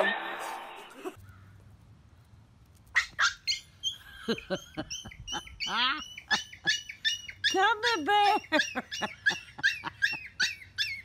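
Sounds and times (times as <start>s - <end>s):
puppies yipping and squealing: 3.0s - 11.0s.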